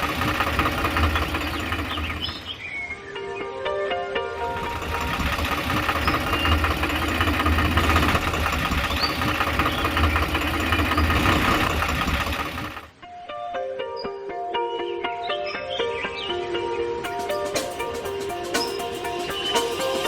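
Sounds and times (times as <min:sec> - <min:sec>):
motor running with low rumble: 0:00.0 - 0:02.5, 0:04.5 - 0:12.9.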